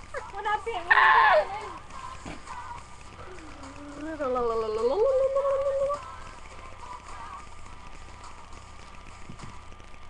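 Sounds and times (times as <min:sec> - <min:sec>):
low electrical hum: 0:00.0 - 0:10.0
drawn-out vocal sound: 0:00.9 - 0:07.5.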